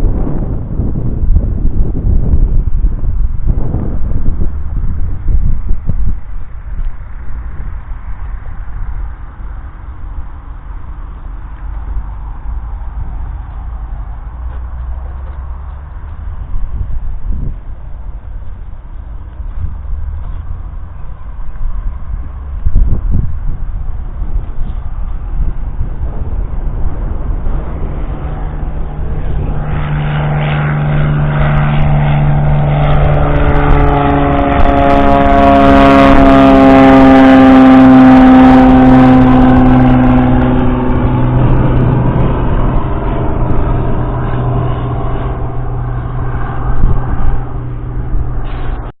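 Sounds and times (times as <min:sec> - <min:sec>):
tractor diesel engine passing: 0:23.5 - 0:48.9.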